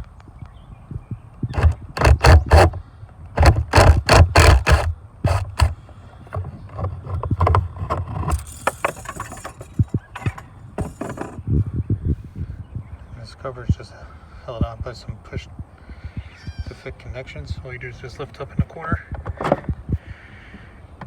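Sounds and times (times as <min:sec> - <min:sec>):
hard plastic parts knocking: 0:01.5 - 0:11.4
light clicks and scraping: 0:03.4 - 0:11.4.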